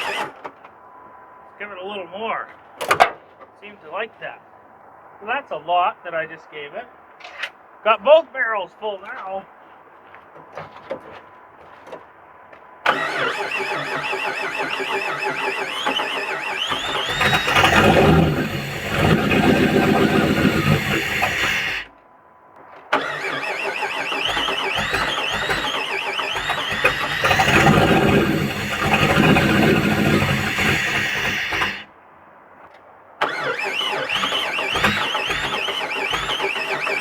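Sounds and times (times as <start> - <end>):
starter motor cranking: 0.0 - 0.4, 12.9 - 21.9, 22.9 - 31.9, 33.2 - 37.0
engine running: 0.0 - 0.5, 12.8 - 21.9, 22.9 - 31.9, 33.2 - 37.0.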